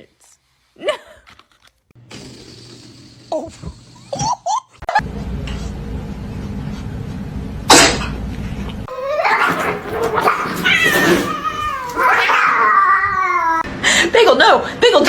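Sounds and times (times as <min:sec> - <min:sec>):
cat meowing: 0:08.9 - 0:13.7.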